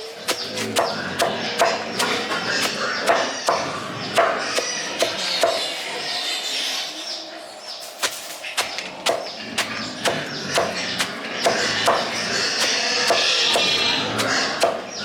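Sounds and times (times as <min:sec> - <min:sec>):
sharp knocks: 0:11.4 - 0:12.1, 0:14.6 - 0:14.9.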